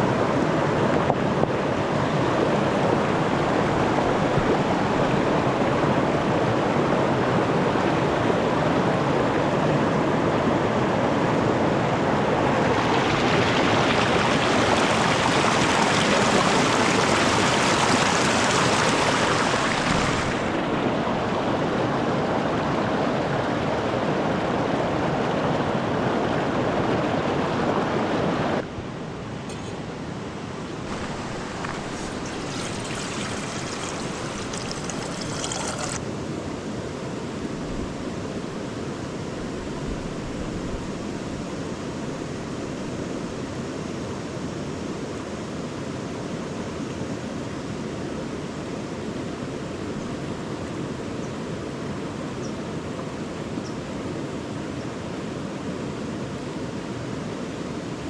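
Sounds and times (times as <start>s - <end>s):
river rushing over rocks: 0.0s - 23.3s, 30.4s - 36.0s.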